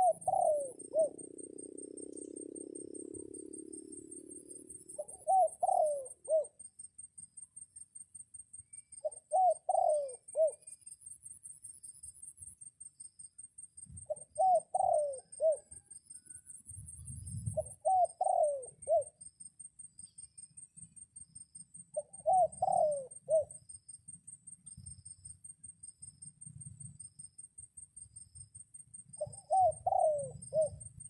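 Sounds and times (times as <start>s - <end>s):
dove cooing: 0.0s - 6.6s, 9.0s - 10.6s, 14.0s - 15.9s, 17.4s - 19.2s, 21.9s - 23.6s, 29.2s - 30.9s.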